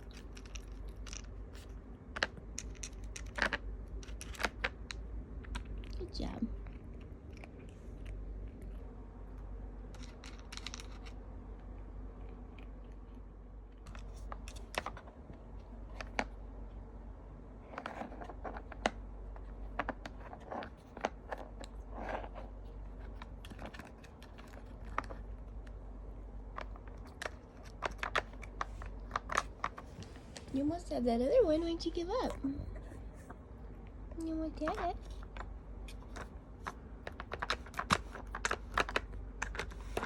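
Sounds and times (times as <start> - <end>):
kitten chewing treats: 0.0 - 16.4.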